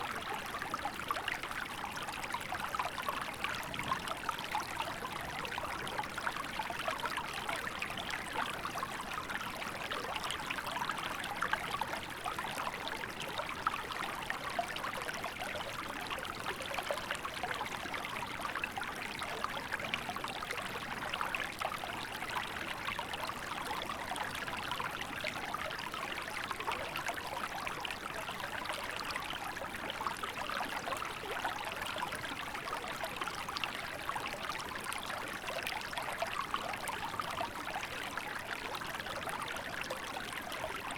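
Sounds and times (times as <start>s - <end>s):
small river babbling: 0.0s - 40.9s.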